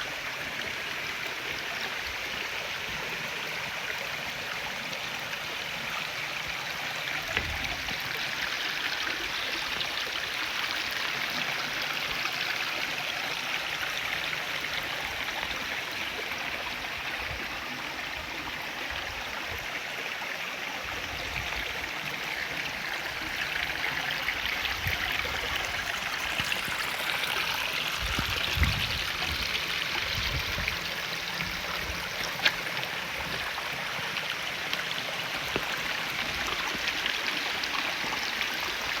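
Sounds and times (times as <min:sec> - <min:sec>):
stream rushing over rocks: 0:00.0 - 0:39.0
sharp ticks from water: 0:32.1 - 0:33.5.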